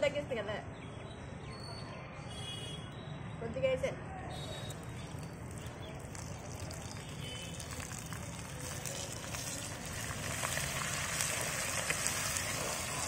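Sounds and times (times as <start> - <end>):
spinach sizzling in hot oil: 4.6 - 13.0
spatula stirring in pan: 5.5 - 13.0.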